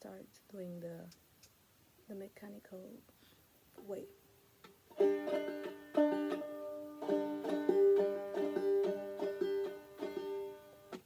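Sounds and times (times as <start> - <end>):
banjo played clawhammer style: 4.9 - 11.0.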